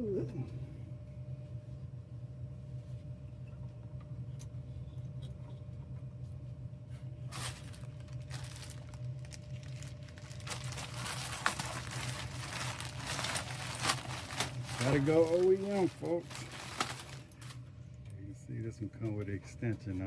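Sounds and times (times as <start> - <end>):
low hum: 0.0 - 19.0
rustling and crinkling: 6.9 - 18.1.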